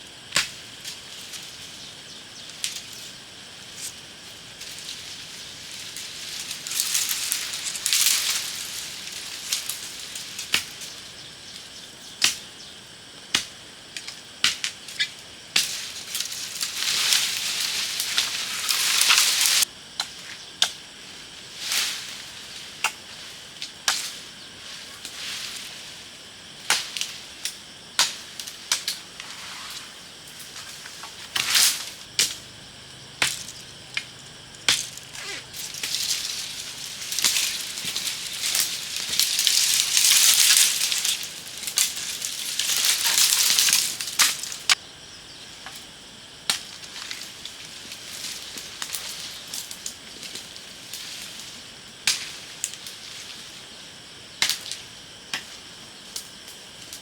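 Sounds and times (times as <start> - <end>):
high hissing or rustling: 0.9 - 11.1, 15.0 - 19.7, 28.1 - 32.0, 34.8 - 44.8
sharp cracks and snaps: 4.6 - 11.0, 13.4 - 20.8, 26.6 - 29.3, 33.2 - 44.8, 54.4 - 55.6.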